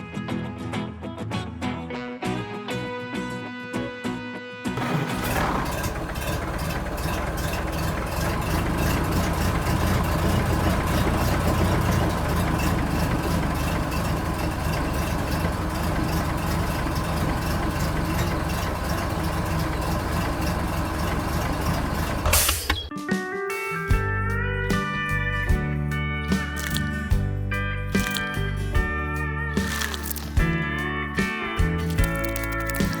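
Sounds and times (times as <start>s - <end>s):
engine idling: 4.8s - 22.6s, 31.8s - 33.0s.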